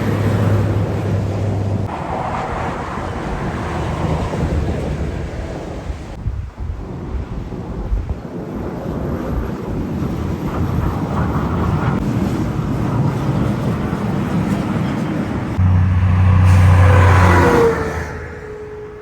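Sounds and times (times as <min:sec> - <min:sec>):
heavy truck approaching: 0:15.5 - 0:19.0
deep engine note: 0:15.6 - 0:19.0.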